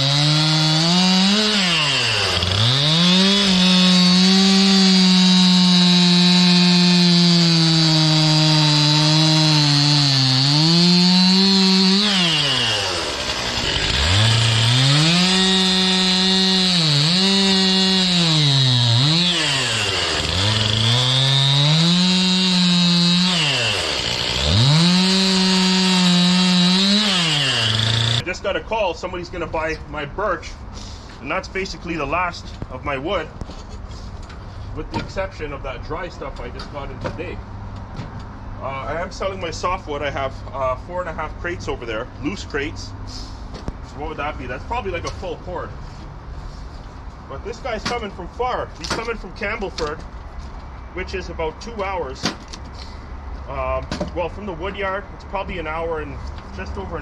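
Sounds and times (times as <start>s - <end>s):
chainsaw cutting firewood: 0.0s - 28.2s.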